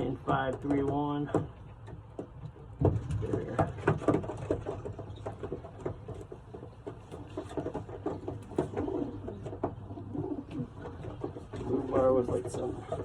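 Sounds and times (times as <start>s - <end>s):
pigeons cooing softly: 2.6s - 13.0s.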